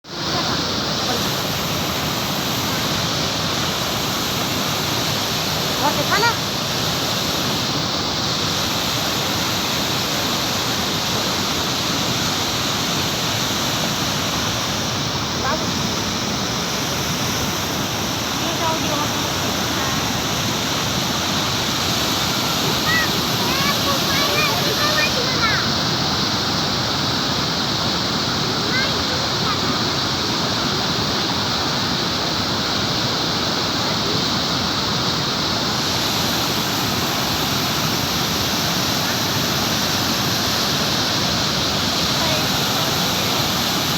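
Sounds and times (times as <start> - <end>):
waterfall crashing onto rocks: 0.1 - 43.9.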